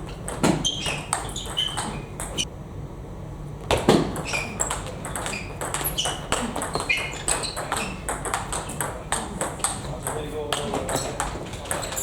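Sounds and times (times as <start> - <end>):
short high squeaks: 0.5 - 2.4, 4.2 - 8.0.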